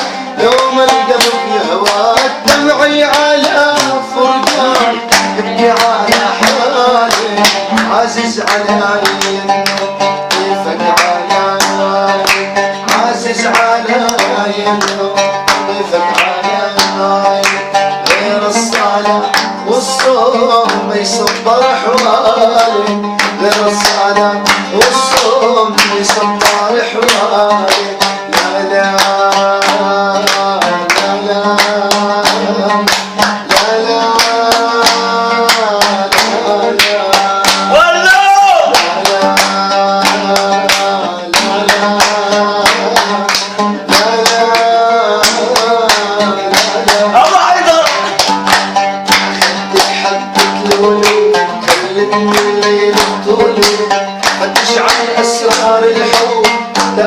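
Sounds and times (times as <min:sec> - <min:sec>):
plucked string melody: 0:00.0 - 0:57.0.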